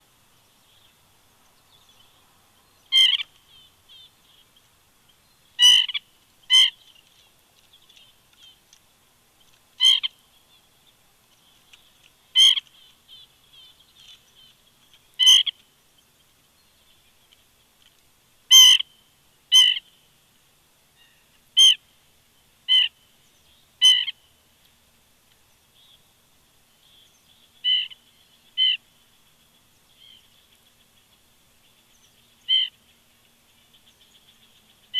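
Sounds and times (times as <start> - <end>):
birds twittering: 0.4 - 8.6, 9.4 - 17.7, 26.7 - 34.9
woodpecker calling: 2.9 - 4.4, 5.6 - 7.0, 9.4 - 10.2, 11.6 - 15.6, 27.6 - 28.8, 29.4 - 34.9.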